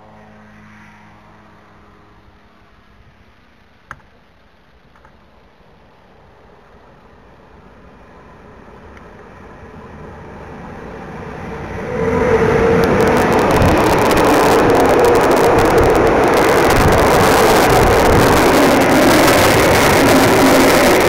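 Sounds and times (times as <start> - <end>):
freight train passing: 5.8 - 21.0
wheels clicking on rails: 6.5 - 21.0.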